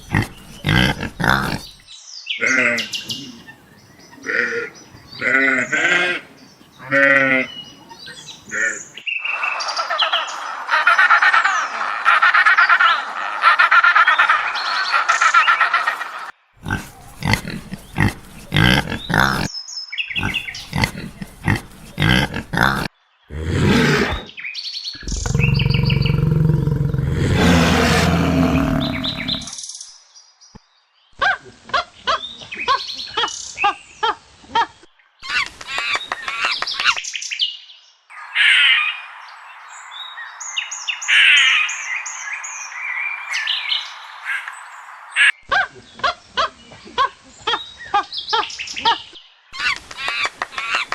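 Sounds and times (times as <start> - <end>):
loud low animal call: 0.0 - 1.8, 16.6 - 19.5, 20.2 - 24.3, 25.0 - 29.5
short bird calls and chirps: 17.0 - 23.3.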